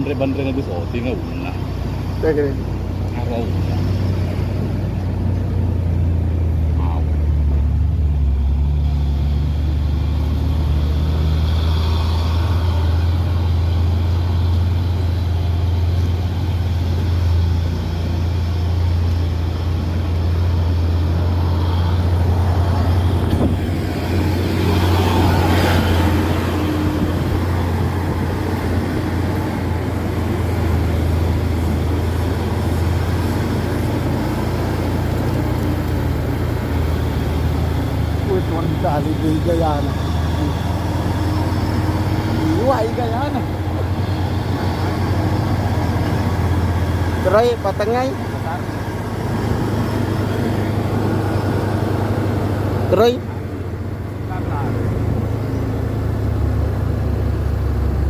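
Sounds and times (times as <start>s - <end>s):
truck diesel engine droning: 0.0s - 58.0s.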